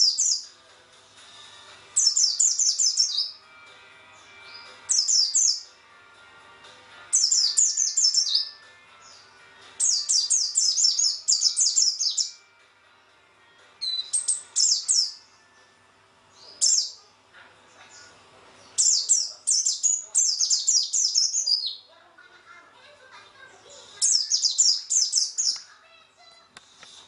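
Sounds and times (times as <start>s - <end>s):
songbird rapid high chirping: 0.0s - 0.5s, 2.0s - 3.4s, 4.5s - 5.7s, 7.1s - 9.2s, 9.8s - 12.4s, 13.8s - 15.2s, 16.4s - 17.0s, 17.9s - 21.9s, 24.0s - 25.6s.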